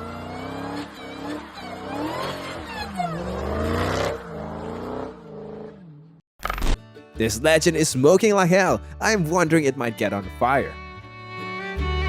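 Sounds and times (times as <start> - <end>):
car engine revving: 0.0 - 6.2.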